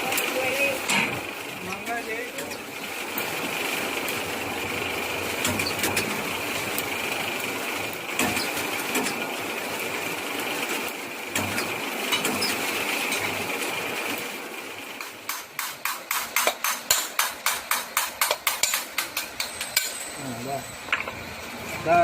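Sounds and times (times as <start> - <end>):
small machine running: 19.2 - 22.0.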